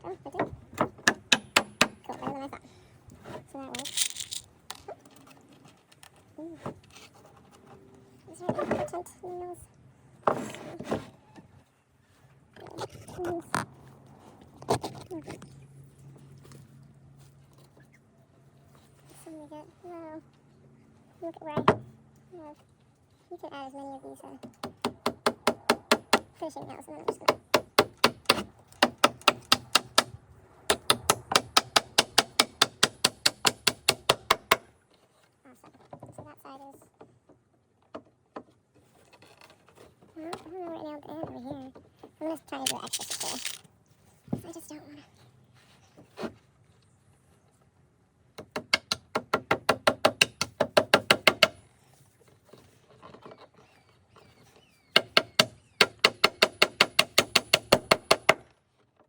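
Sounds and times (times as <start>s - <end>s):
hammer tapping nails into wood: 0.8s - 2.0s, 27.2s - 30.1s, 30.7s - 34.6s, 48.4s - 51.6s, 55.0s - 58.5s.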